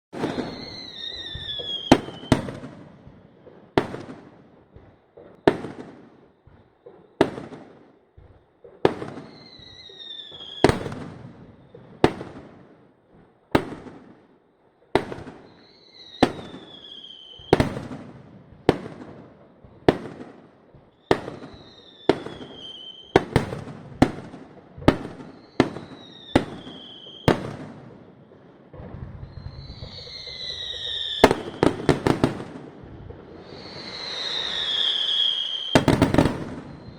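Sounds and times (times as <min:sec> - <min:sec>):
firework high whistling: 0:00.1 - 0:03.5, 0:08.9 - 0:12.1, 0:15.3 - 0:17.9, 0:20.9 - 0:24.2, 0:24.8 - 0:36.9
fireworks bursting bangs: 0:00.1 - 0:36.9.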